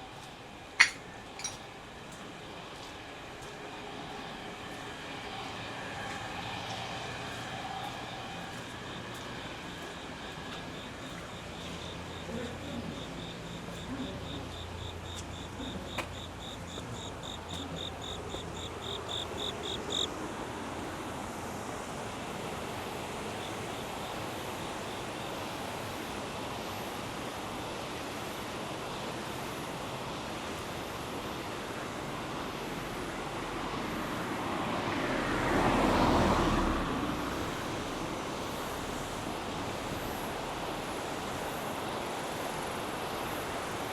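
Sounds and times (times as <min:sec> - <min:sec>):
insect chirping: 0:07.4 - 0:20.1
vehicle passing: 0:34.8 - 0:40.1.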